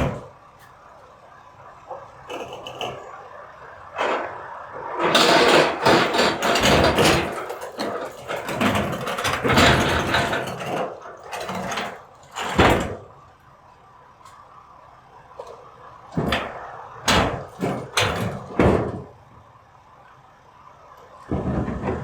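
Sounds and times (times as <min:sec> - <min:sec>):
recyclables crashing into garbage truck: 0:04.0 - 0:13.2, 0:21.3 - 0:22.0.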